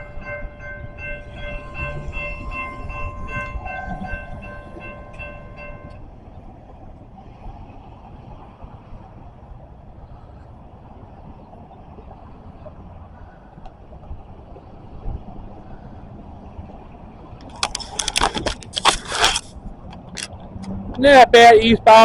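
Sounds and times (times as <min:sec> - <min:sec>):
ringing warning signal: 0:00.0 - 0:06.2
train rumbling past: 0:00.0 - 0:18.7.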